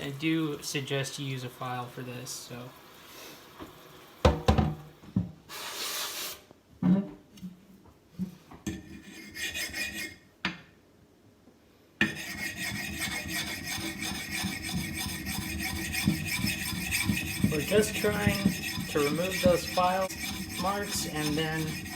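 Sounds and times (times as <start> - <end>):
sharpening stone scraping axe: 12.0 - 21.9.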